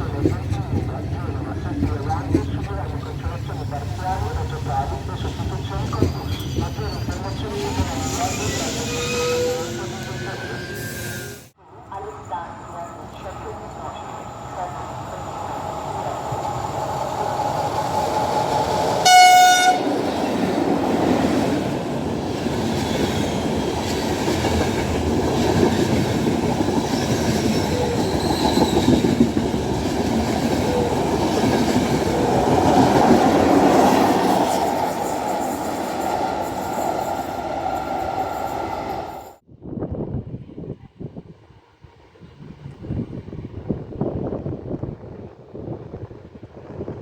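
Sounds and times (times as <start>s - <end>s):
train wheels rumbling on rails: 0.0s - 11.4s, 14.1s - 39.4s
train horn blast: 19.0s - 20.1s.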